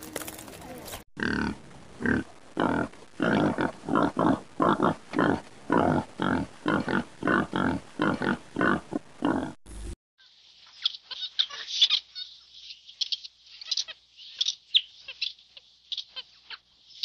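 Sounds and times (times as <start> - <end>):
wild boar grunting: 1.2 - 9.6.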